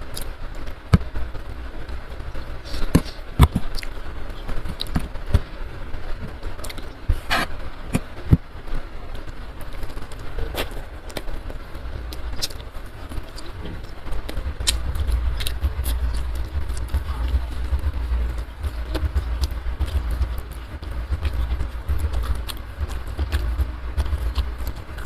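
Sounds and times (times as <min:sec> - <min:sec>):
low rumble: 0:08.8 - 0:25.0
chewing clicks and smacks: 0:12.1 - 0:25.0.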